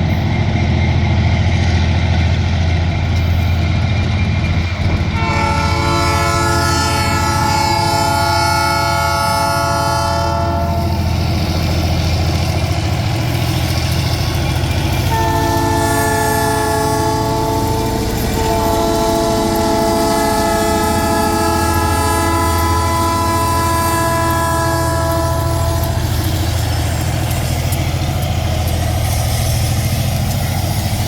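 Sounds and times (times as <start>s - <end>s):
locomotive air horn: 5.1s - 11.1s, 15.0s - 26.4s.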